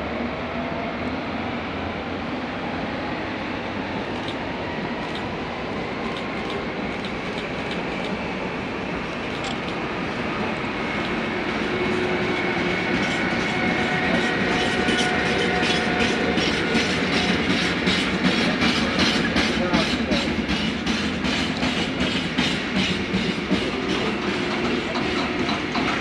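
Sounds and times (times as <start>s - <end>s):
train approaching: 0.0s - 26.0s
wheels clicking over rail joints: 11.8s - 26.0s.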